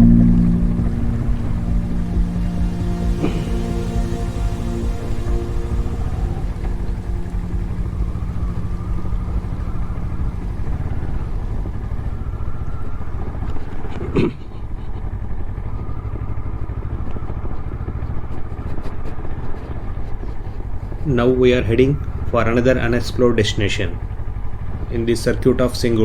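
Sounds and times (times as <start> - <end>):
background music: 0.0 - 12.5
motorcycle engine running: 0.0 - 19.8
road rumble: 0.0 - 26.0.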